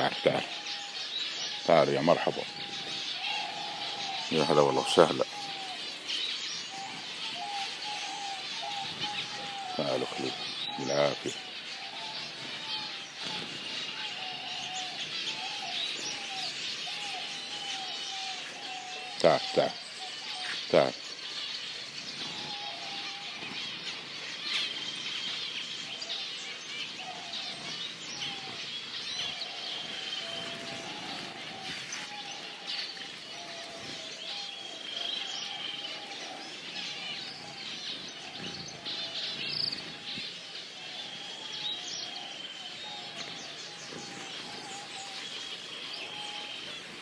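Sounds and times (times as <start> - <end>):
low warbling bird calls: 0.0 - 47.0.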